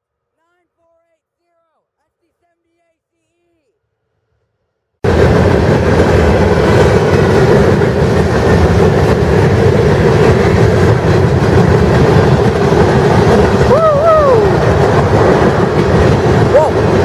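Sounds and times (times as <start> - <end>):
train wheels rumbling on rails: 5.0 - 17.0.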